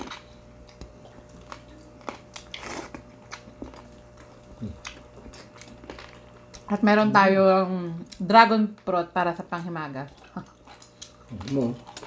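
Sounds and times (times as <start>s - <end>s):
chewing and biting food: 0.0s - 6.7s, 10.0s - 12.0s
faint steady hum: 0.0s - 12.0s.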